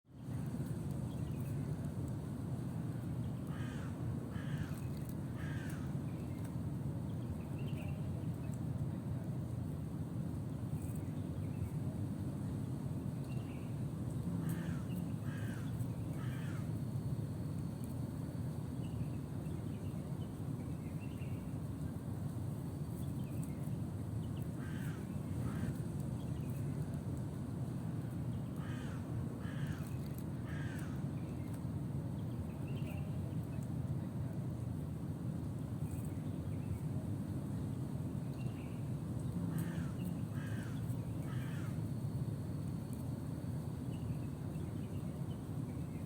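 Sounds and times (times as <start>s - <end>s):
crows cawing: 3.5s - 4.8s, 5.4s - 6.0s, 14.4s - 16.7s, 24.6s - 25.8s, 28.6s - 31.0s, 39.5s - 41.8s.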